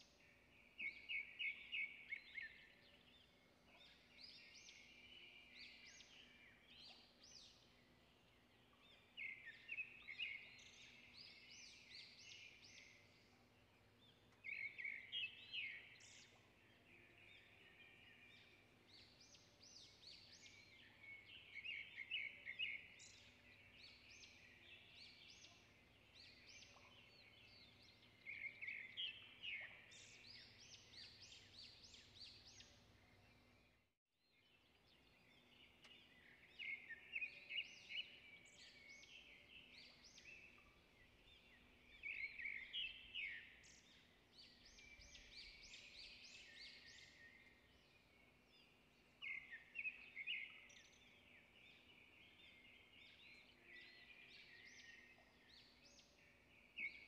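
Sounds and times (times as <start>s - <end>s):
faint outdoor background noise: 0.0s - 57.0s
birds chirping: 35.0s - 57.0s.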